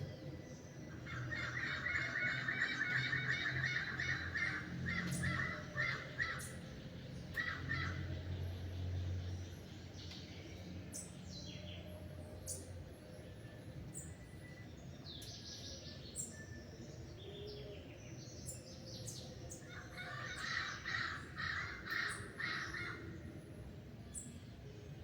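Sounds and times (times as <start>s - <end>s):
harsh bird calls: 0.0s - 8.8s, 15.6s - 23.5s
small birds chirping: 0.0s - 25.0s.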